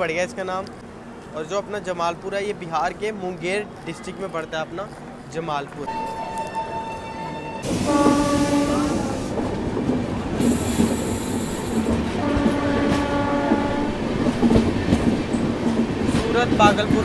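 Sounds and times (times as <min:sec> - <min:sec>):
train horn: 0:05.9 - 0:09.3, 0:12.2 - 0:14.0
train wheels clattering on rails: 0:07.6 - 0:17.0.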